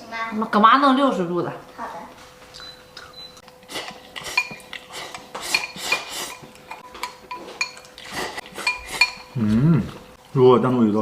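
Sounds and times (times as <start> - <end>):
utensils clinking on plates: 2.5 - 9.5.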